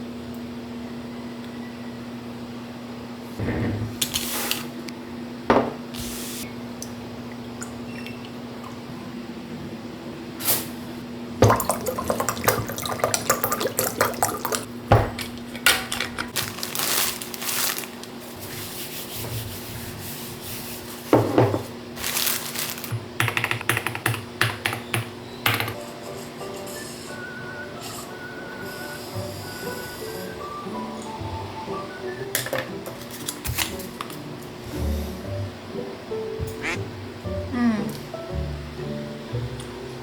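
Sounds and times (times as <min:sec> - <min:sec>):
water running from a tap: 0:11.4 - 0:14.7.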